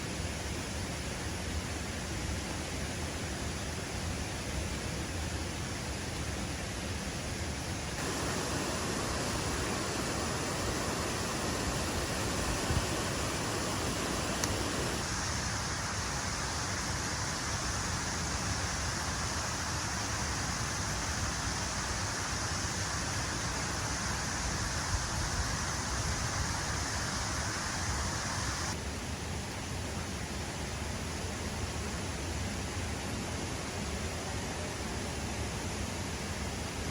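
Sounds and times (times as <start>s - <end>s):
waterfall rushing: 8.0s - 15.1s.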